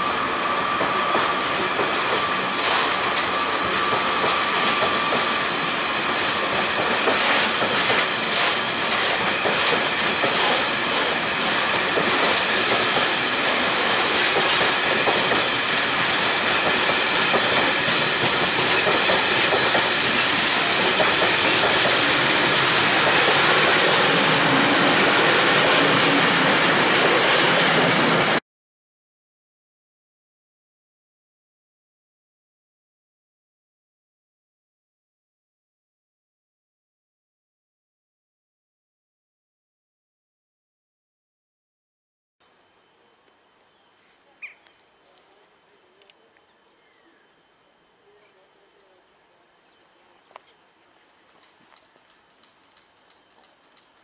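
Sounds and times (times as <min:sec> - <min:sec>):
train wheels clattering over joints: 0:00.8 - 0:27.9.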